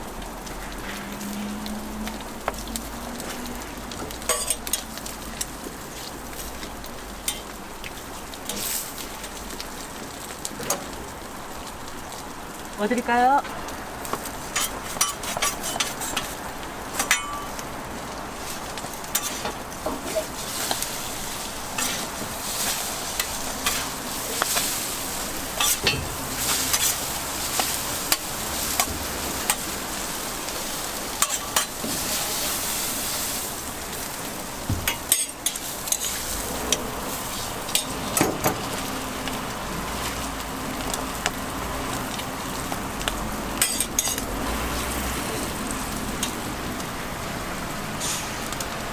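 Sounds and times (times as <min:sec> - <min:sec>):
food sizzling on griddle: 0:00.0 - 0:48.9
metal utensils clicking and scraping: 0:03.3 - 0:05.5, 0:14.4 - 0:17.6, 0:18.4 - 0:34.1, 0:34.9 - 0:38.8, 0:43.6 - 0:44.3.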